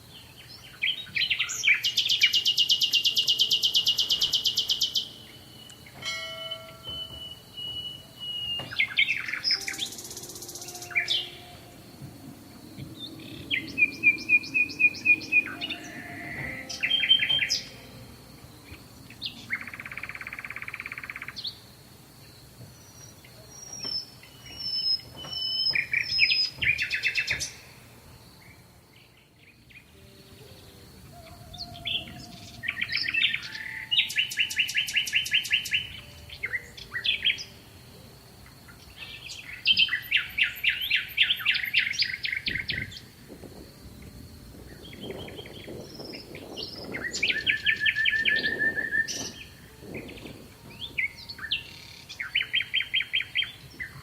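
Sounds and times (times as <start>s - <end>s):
goldfinch singing: 0.5s - 21.6s, 44.8s - 54.0s.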